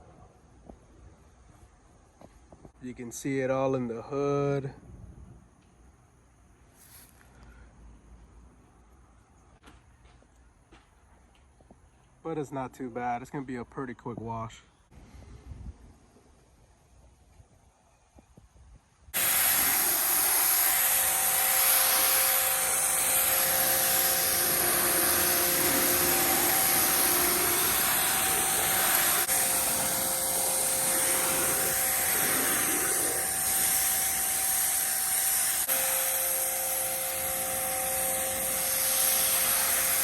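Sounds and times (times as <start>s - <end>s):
pressure washer motor whine: 19.2s - 40.0s
water spray hiss: 19.2s - 40.0s.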